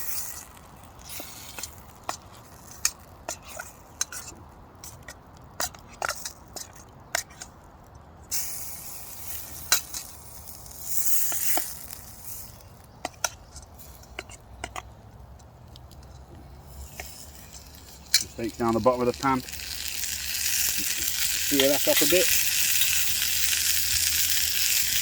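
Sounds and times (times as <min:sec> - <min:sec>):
steak sizzling in a pan: 0:08.4 - 0:12.6, 0:16.6 - 0:25.0.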